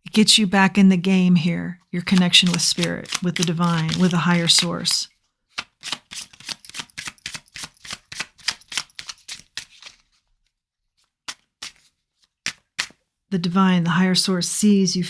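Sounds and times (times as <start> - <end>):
cards being shuffled: 2.0 - 10.3, 11.0 - 13.0.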